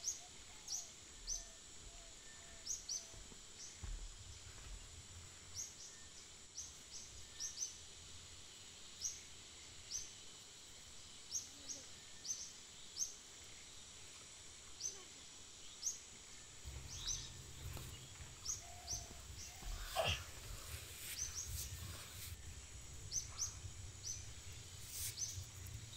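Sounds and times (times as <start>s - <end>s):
small birds chirping: 10.8s - 25.9s
low rumble: 16.7s - 25.9s.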